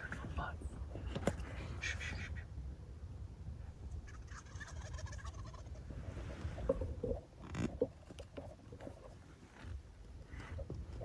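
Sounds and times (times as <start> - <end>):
turkey gobbling: 4.0 - 6.0.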